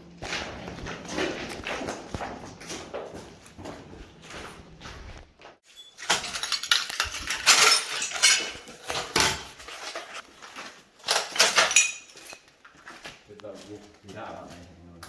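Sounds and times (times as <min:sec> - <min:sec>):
footsteps crunching over debris: 0:00.0 - 0:14.9
hard fragments clattering: 0:05.7 - 0:10.2, 0:11.0 - 0:12.5.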